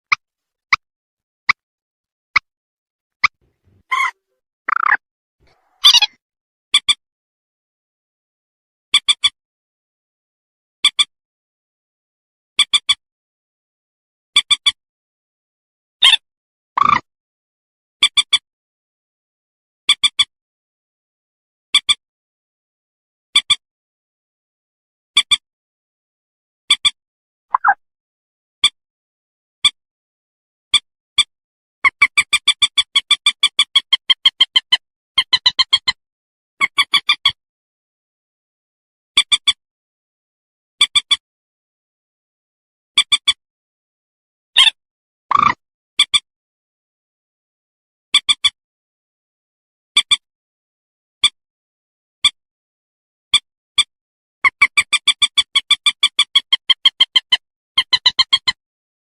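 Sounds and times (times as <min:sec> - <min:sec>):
moorhen calls: 0:03.7 - 0:06.2
moorhen calling: 0:03.8 - 0:04.1, 0:05.8 - 0:06.1.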